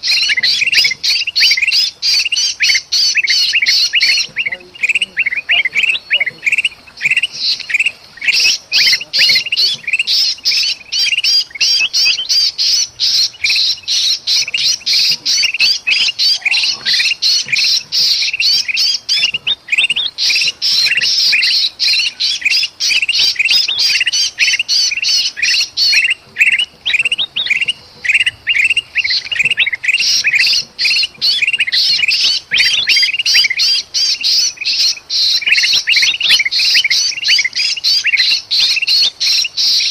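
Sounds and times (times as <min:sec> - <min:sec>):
bird chatter and distress squawks: 0:00.0 - 0:39.9.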